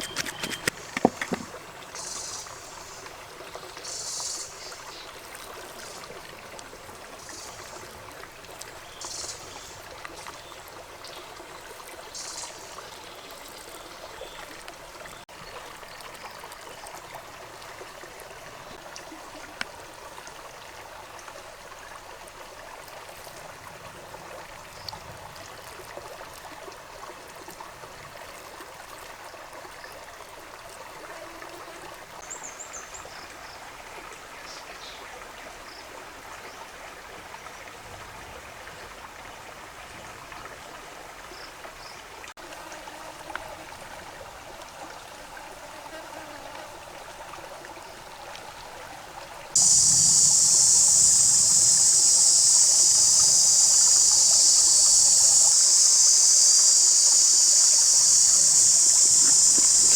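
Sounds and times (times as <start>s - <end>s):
running water rushing: 0.0s - 29.6s, 46.4s - 59.9s.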